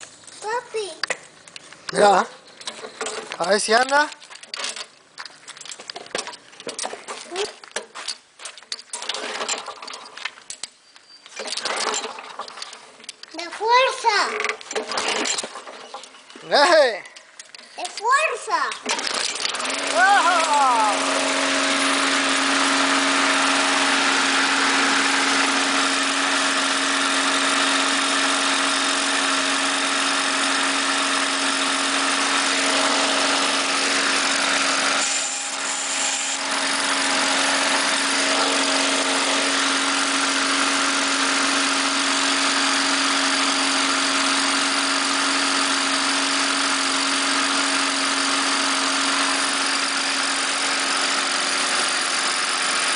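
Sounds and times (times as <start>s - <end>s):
mower engine running: 18.0s - 52.9s.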